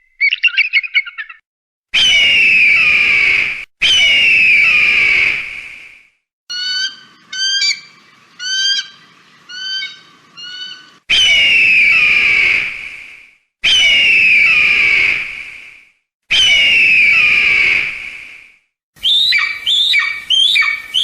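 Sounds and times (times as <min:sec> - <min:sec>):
hawk long screaming calls: 0:06.5 - 0:12.7, 0:19.0 - 0:21.0.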